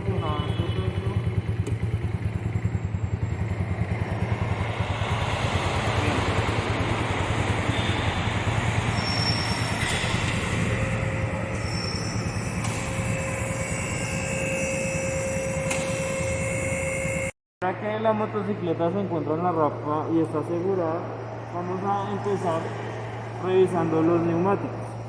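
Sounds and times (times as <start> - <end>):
motorcycle engine idling: 0.0 - 17.3.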